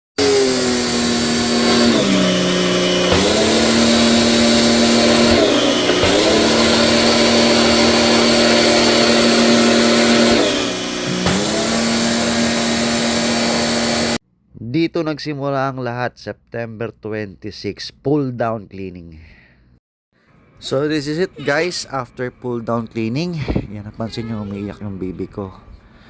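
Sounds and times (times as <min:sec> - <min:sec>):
air conditioner whirring hum: 0:20.4 - 0:26.0.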